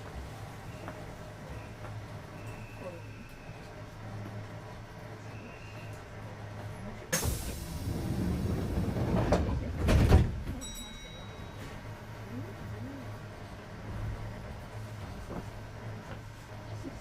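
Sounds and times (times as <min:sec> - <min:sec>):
low hum of stationary train: 0:00.0 - 0:17.0
train doors closing with air hiss: 0:07.1 - 0:10.6.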